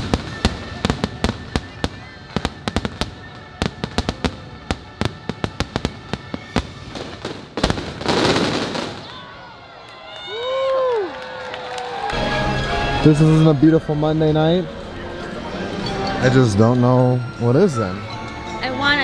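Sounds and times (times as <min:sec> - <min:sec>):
fireworks bursting: 0:00.0 - 0:09.3.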